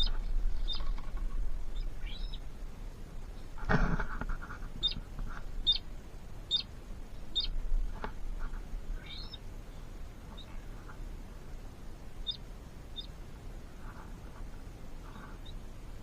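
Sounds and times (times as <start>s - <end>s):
small bird chirping: 0.0s - 2.6s, 4.6s - 7.6s, 8.5s - 11.0s, 12.2s - 13.2s, 13.8s - 15.7s.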